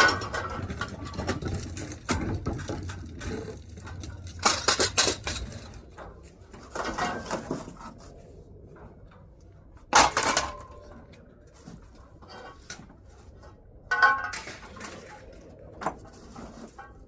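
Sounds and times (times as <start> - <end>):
scrap metal clanging: 11.6 - 17.0.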